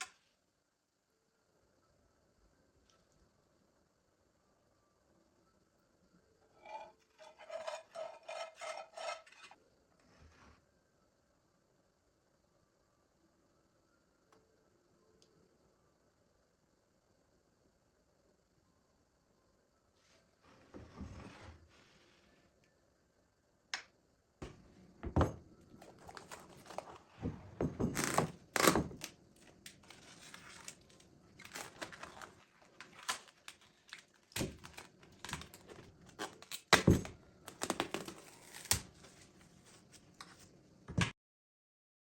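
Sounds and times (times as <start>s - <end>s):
crinkling and rustling: 25.2s - 40.5s.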